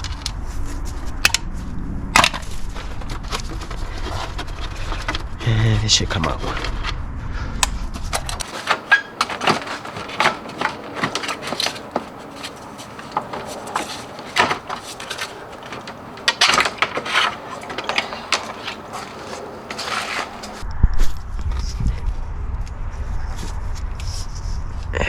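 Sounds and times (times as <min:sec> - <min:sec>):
metal tools clinking and scraping: 0:08.4 - 0:20.6.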